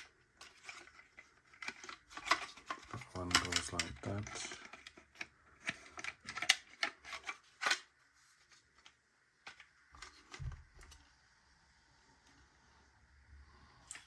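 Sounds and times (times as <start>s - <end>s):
plastic toy parts clicking: 1.5s - 7.9s.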